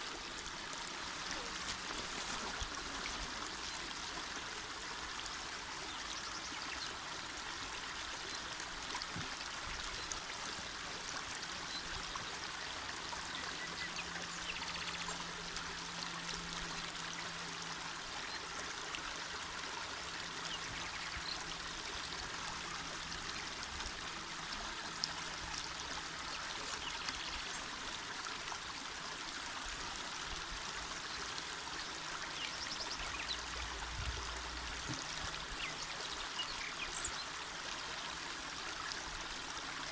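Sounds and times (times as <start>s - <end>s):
small water splashes: 0.0s - 4.6s
river flowing over stones: 0.0s - 39.9s.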